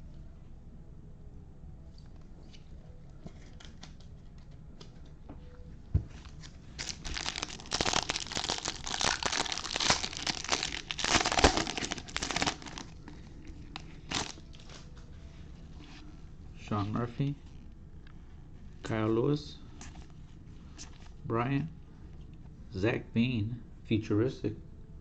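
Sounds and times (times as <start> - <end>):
wrapper tearing and crinkling: 6.4 - 14.9.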